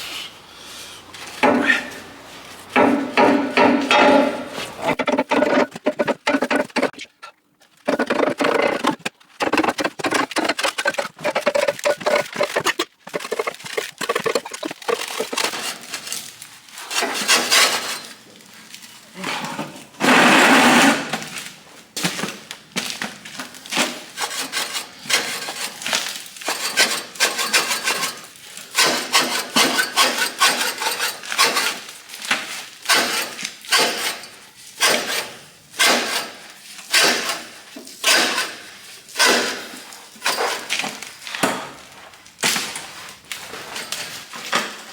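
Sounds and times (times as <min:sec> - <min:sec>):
hand tools knocking on steel: 0:02.8 - 0:05.0
metal rasping: 0:26.4 - 0:31.9, 0:32.9 - 0:38.6.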